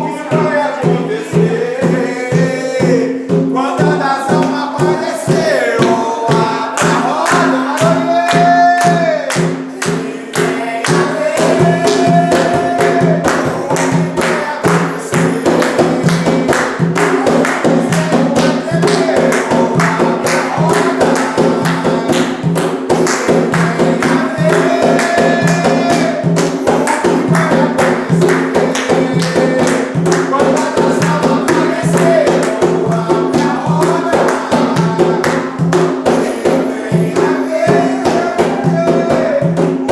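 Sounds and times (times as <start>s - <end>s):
group singing: 0.0s - 39.9s
hand drums and percussion: 0.0s - 39.9s.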